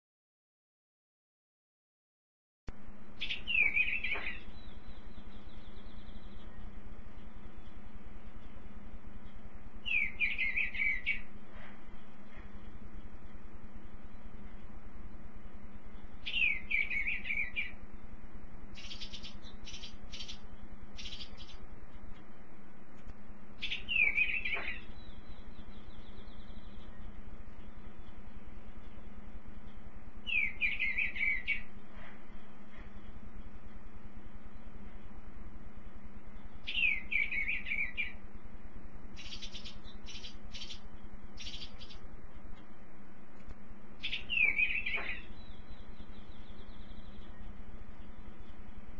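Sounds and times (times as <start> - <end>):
faint steady hum: 2.7 - 48.9
birds singing: 2.9 - 22.6, 23.5 - 35.2, 35.8 - 42.9, 43.8 - 48.9
songbird warbling: 3.2 - 6.8, 9.8 - 11.3, 16.2 - 17.8, 18.7 - 21.6, 23.6 - 27.2, 30.2 - 31.7, 36.6 - 38.2, 39.2 - 42.0, 44.0 - 48.1
harsh hissy bird notes: 9.8 - 12.6, 18.7 - 21.7, 23.6 - 27.1, 30.2 - 33.2, 39.2 - 42.1, 43.9 - 47.5.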